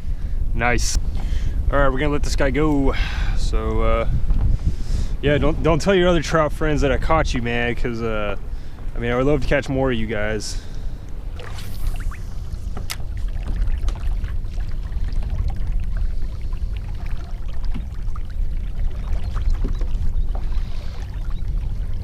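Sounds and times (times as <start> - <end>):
steady low rumble: 0.0 - 22.0
water splashing against kayak hull: 10.8 - 22.0.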